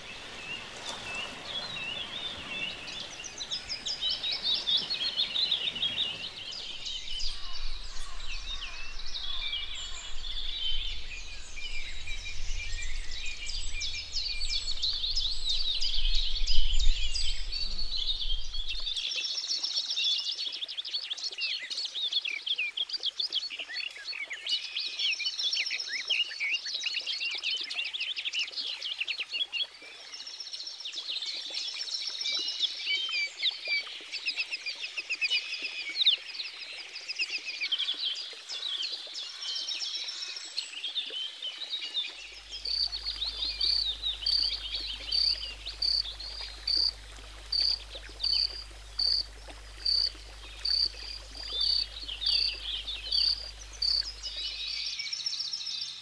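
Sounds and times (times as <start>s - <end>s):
small birds chirping: 0.0s - 19.7s, 29.4s - 56.0s
low rumble: 6.6s - 19.0s.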